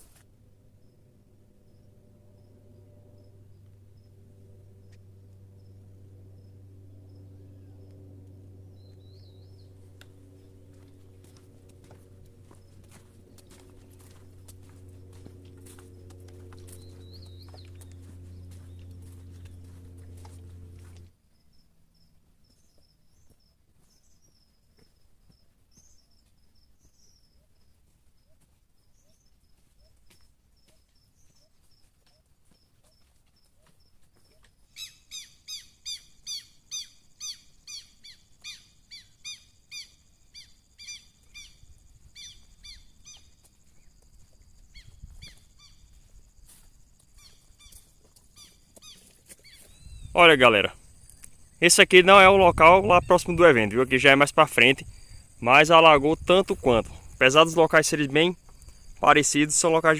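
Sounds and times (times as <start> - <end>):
steady low hum: 0.0 - 59.9
bird ringing downward calls: 8.7 - 10.6, 16.6 - 20.4, 34.7 - 43.4, 47.2 - 53.8.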